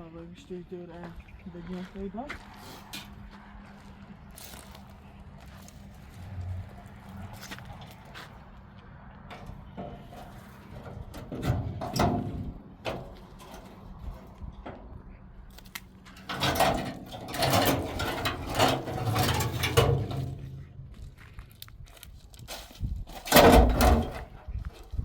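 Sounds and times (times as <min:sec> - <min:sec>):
clicking and rattling handling noise: 0:09.2 - 0:25.0.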